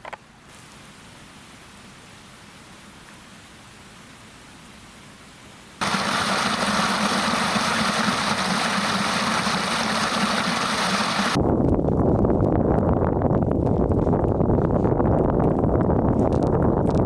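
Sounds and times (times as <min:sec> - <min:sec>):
waterfall roaring: 0:05.8 - 0:11.4.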